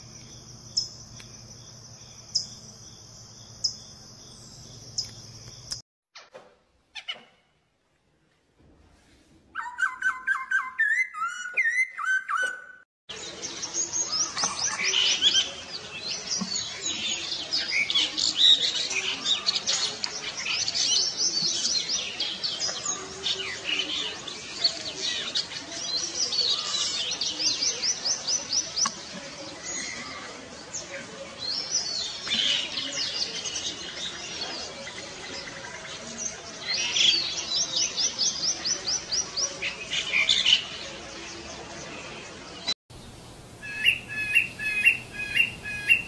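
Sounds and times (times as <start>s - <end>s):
birds chirping and chattering: 0.0s - 5.8s, 13.2s - 46.0s
birds whistling: 43.0s - 46.0s.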